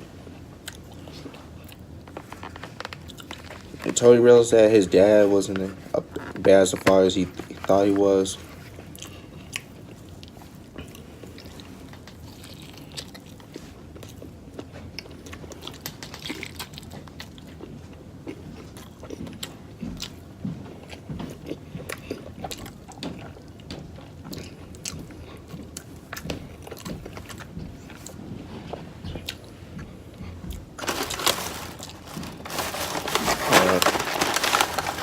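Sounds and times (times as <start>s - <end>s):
person chewing food: 0.3s - 3.8s, 8.4s - 28.2s, 29.1s - 33.2s.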